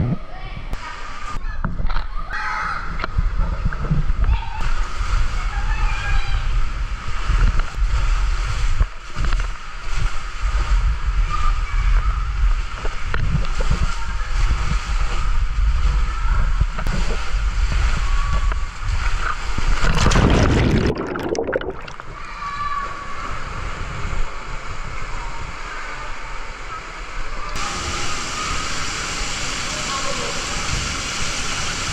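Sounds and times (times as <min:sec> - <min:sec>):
rush of water: 0:00.8 - 0:31.9
water sloshing and splashing: 0:16.6 - 0:22.5.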